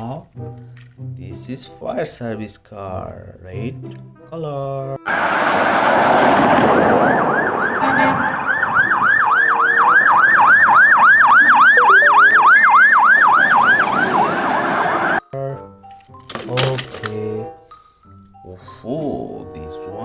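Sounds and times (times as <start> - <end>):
fire truck siren yelping: 5.1 - 15.3.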